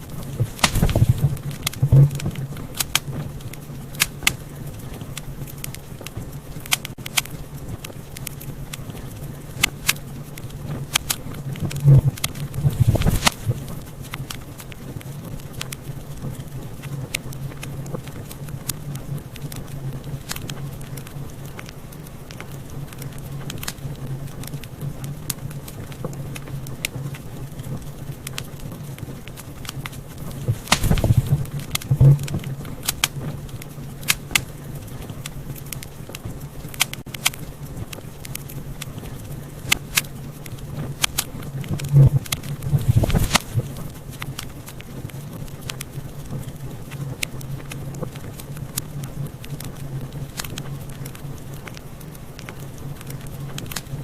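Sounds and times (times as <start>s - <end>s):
fire low rumble: 0.0s - 54.0s
wood fire crackling and popping: 0.0s - 54.0s.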